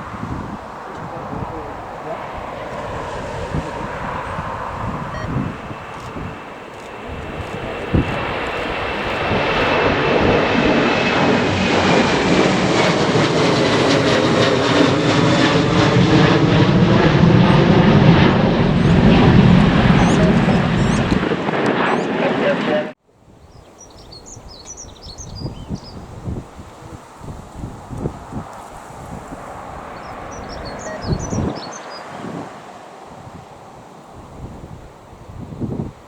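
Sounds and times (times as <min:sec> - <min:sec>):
aircraft engine passing: 0:00.0 - 0:23.0, 0:23.6 - 0:35.8
high whine falling in pitch: 0:18.1 - 0:21.3.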